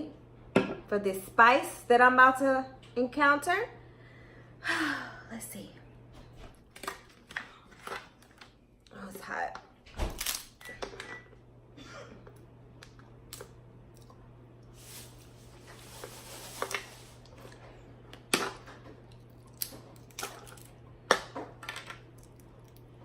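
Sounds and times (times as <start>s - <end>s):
low steady hum: 0.0s - 23.0s
shellfish shells cracking: 19.1s - 20.8s.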